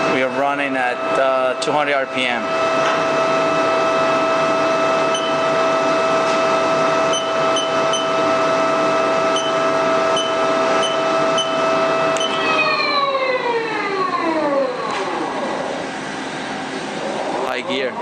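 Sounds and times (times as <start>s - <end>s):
lathe spindle whining: 0.0s - 17.9s.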